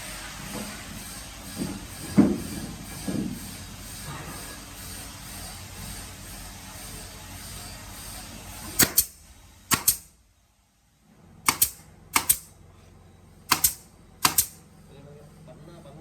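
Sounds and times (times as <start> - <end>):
workshop machinery hiss: 0.0 - 10.2, 11.4 - 12.5, 13.4 - 14.9
sharp double clacks: 11.5 - 12.5, 13.5 - 14.6.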